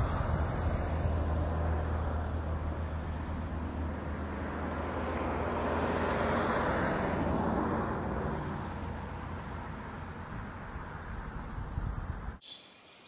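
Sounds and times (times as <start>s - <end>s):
rush of noise: 0.0s - 4.7s
vehicle engine hum: 0.0s - 12.4s.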